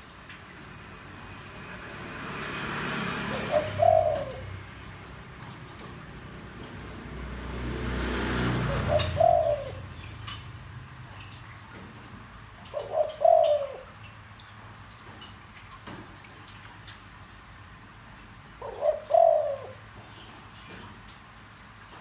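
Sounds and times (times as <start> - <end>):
dove cooing: 3.0 - 10.4, 12.6 - 14.0, 18.6 - 20.0.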